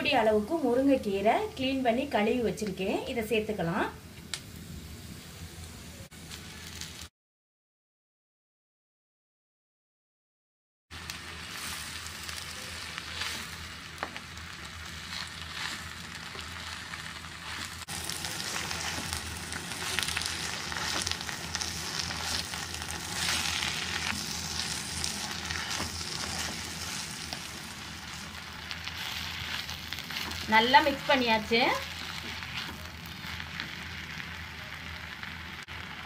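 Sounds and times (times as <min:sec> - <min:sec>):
leaves sizzling in hot oil: 0:00.0 - 0:07.1, 0:10.9 - 0:36.0
wooden spatula stirring in a pot: 0:11.5 - 0:33.9.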